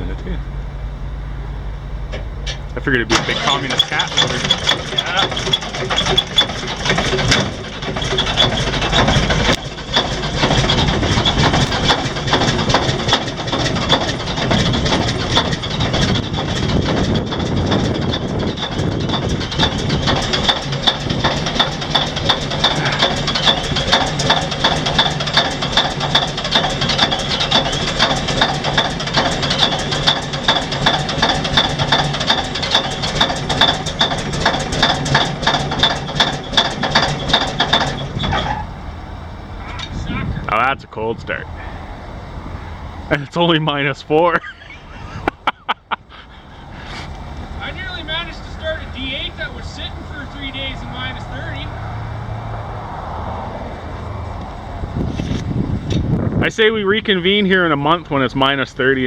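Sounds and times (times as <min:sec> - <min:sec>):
exhaust leak pulsing: 0:00.0 - 0:40.6
diesel engine running rough: 0:00.0 - 0:59.0.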